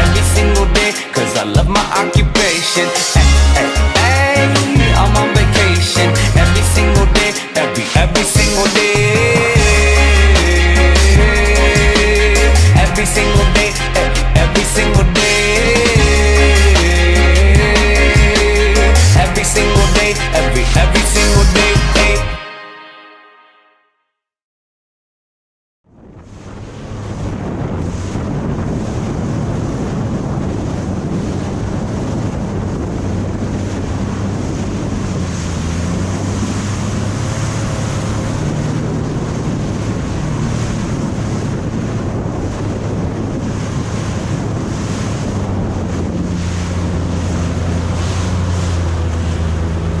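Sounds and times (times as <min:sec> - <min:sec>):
rushing water: 0:00.0 - 0:22.3, 0:26.0 - 0:50.0
watercraft engine drone: 0:00.0 - 0:22.4, 0:25.9 - 0:50.0
wind buffeting microphone: 0:25.9 - 0:50.0.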